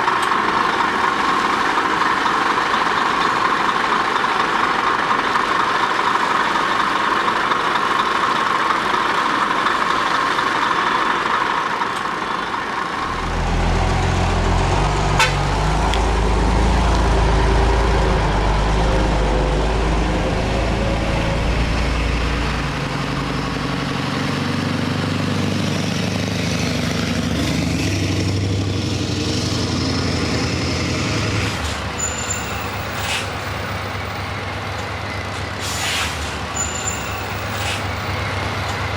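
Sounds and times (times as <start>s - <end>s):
diesel truck engine: 0.0s - 38.9s
traffic rush: 0.0s - 38.9s.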